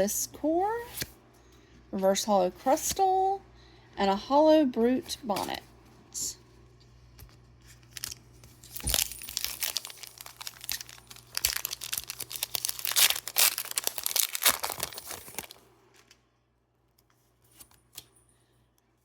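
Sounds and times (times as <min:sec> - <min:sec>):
foil wrapper crinkling and tearing: 0:07.7 - 0:16.1.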